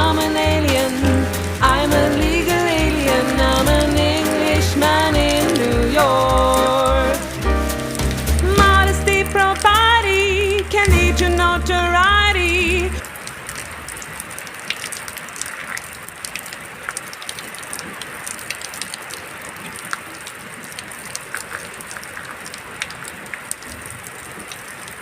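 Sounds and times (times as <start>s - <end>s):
pop song with singing: 0.0s - 13.0s
steady rain falling: 0.0s - 25.0s.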